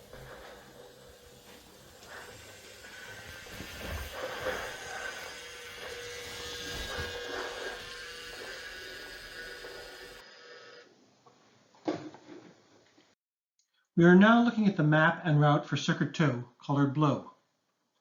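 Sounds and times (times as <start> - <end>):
toy train motor whirring: 0.0 - 10.9.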